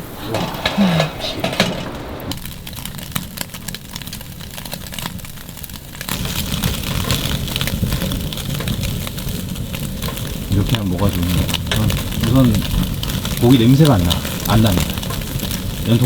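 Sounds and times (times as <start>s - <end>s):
low rushing noise: 0.0s - 2.5s
meat searing hiss: 0.0s - 16.0s
wood fire crackling and spitting: 0.0s - 16.0s.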